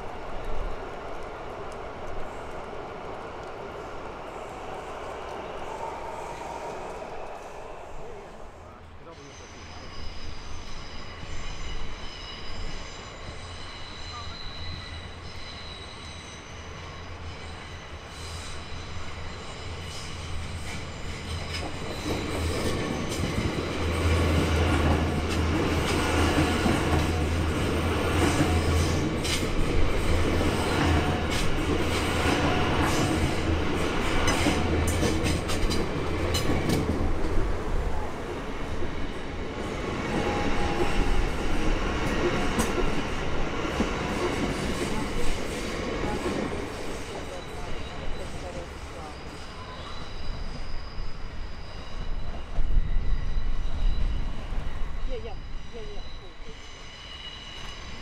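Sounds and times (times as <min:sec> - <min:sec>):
electric train passing: 0:00.0 - 0:58.0
high thin squeal: 0:09.2 - 0:16.7, 0:47.9 - 0:58.0.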